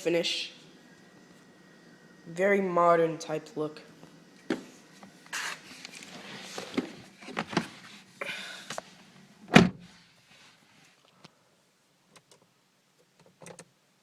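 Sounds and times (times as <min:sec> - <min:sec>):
car door shutting: 0:09.5 - 0:09.9.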